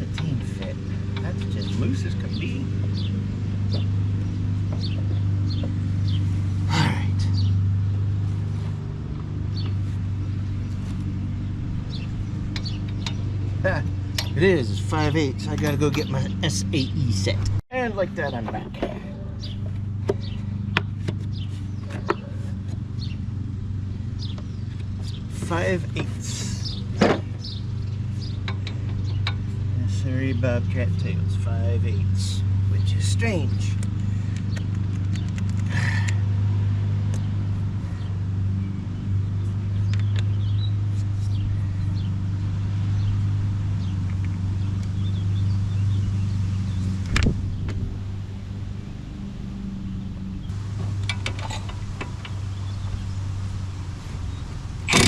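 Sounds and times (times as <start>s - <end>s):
low mechanical hum: 0.0s - 55.0s
metal sockets clinking: 14.1s - 14.4s, 28.3s - 29.5s, 50.8s - 52.4s.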